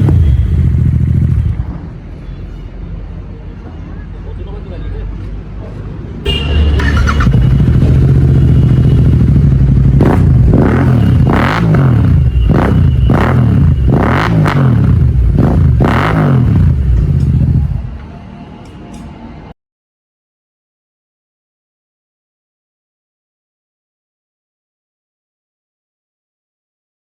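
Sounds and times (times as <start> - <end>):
motorcycle engine revving: 0.0 - 1.8, 6.3 - 17.9.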